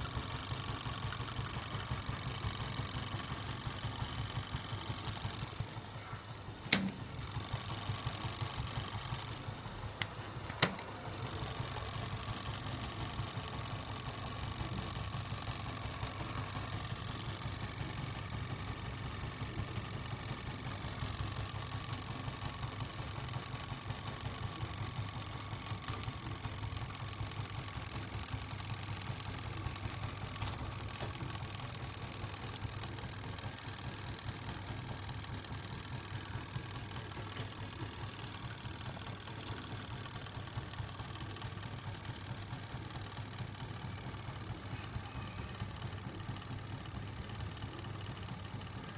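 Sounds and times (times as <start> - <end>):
sharp clicks: 10.0 - 11.0.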